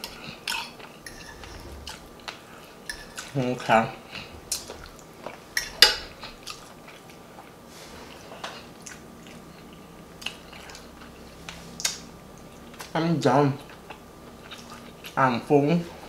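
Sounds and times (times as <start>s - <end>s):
person chewing soft food: 6.2s - 7.6s, 8.4s - 13.0s, 13.6s - 15.2s.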